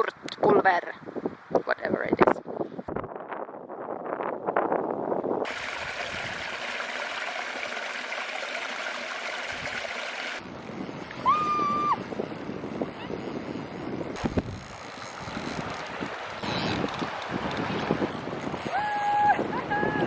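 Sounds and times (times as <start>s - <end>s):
river water rushing: 5.5s - 10.4s.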